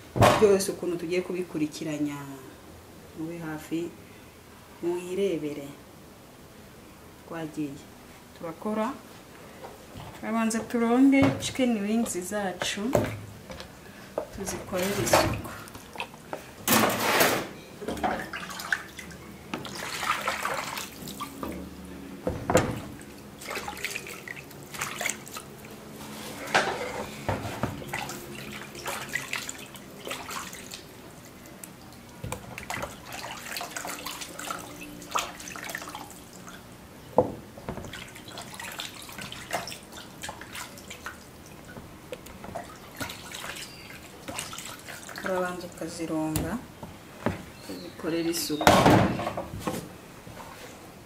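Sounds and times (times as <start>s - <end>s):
water splashing and dripping: 18.0s - 21.7s, 22.6s - 25.8s, 27.6s - 36.8s, 37.7s - 45.8s.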